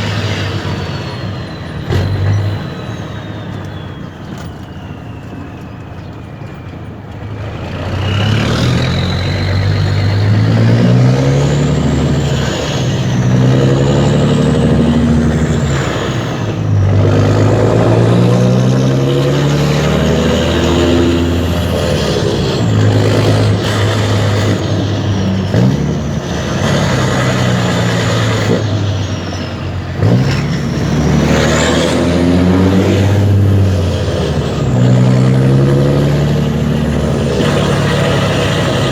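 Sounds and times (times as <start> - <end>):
high whistle: 0.0 - 7.0
truck diesel engine accelerating: 0.0 - 38.9.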